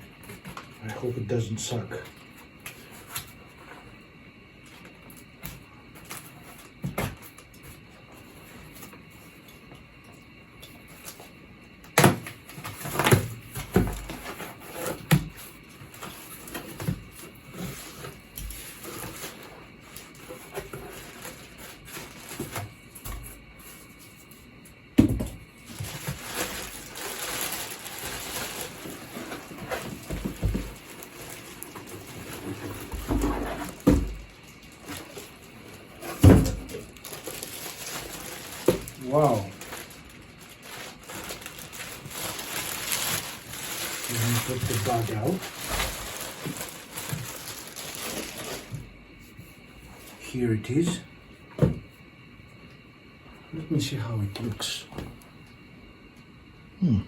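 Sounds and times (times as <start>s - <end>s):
cardboard rustling: 12.4s - 24.4s, 25.6s - 48.9s
cardboard box knocks and thumps: 25.0s - 25.4s, 36.1s - 36.7s.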